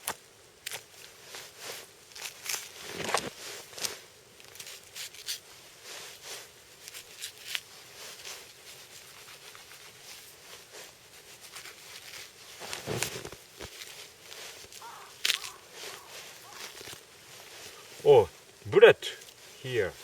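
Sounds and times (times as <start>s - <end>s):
knife cutting and scraping meat: 11.4s - 17.0s.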